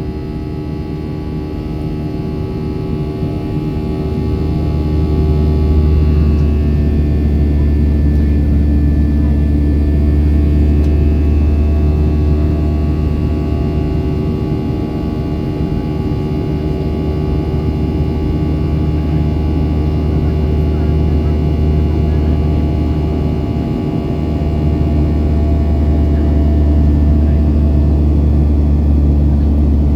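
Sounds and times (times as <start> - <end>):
jet engines droning: 0.0 - 29.9.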